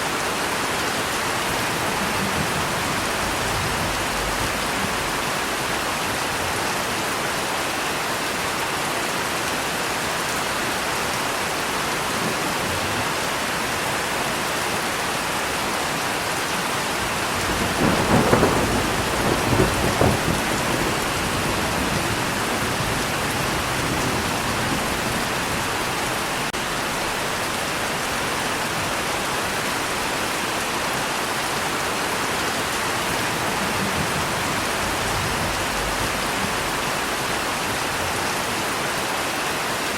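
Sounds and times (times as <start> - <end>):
heavy rain: 0.0 - 39.9
thunder rumbling: 1.0 - 6.5, 16.9 - 30.0, 32.6 - 38.1.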